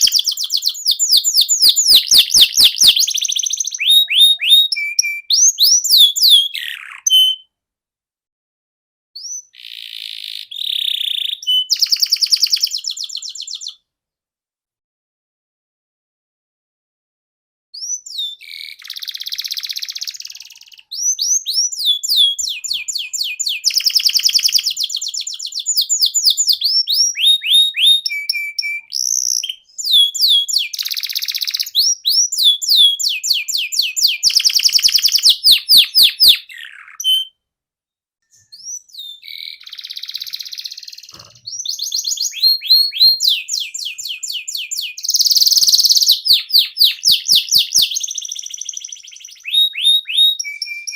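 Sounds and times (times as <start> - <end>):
canary singing trills: 0.0 - 7.4, 9.2 - 13.8, 17.8 - 37.4, 38.3 - 50.9.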